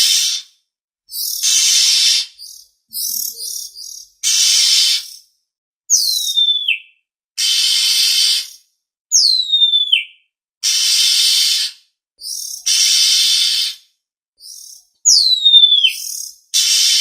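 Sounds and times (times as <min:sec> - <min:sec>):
bird rasping calls: 0:01.2 - 0:05.2, 0:07.4 - 0:08.6, 0:10.6 - 0:13.8.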